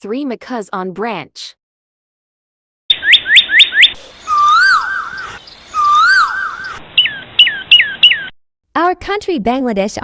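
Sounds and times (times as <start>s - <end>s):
parrots shrieking: 3.0s - 8.3s
parrot warbling whistles: 3.2s - 8.3s.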